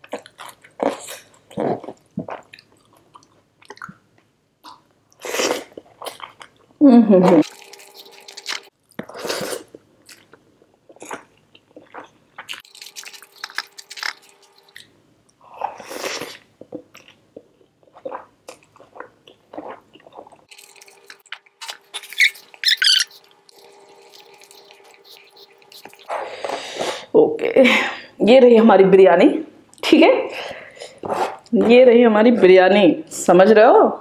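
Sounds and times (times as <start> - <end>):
person chewing food: 0.0 - 27.1.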